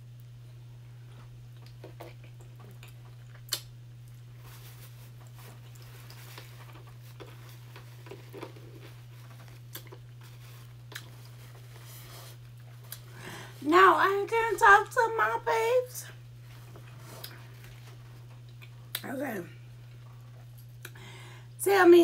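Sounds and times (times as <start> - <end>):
wet chewing smacks: 1.1 - 4.3, 5.2 - 11.4, 16.5 - 19.0.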